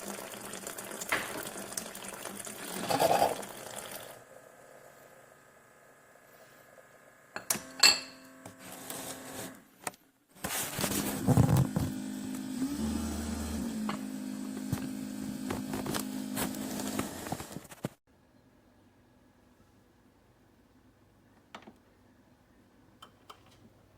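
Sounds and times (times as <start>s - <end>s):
coffee maker pump humming: 10.8s - 17.6s.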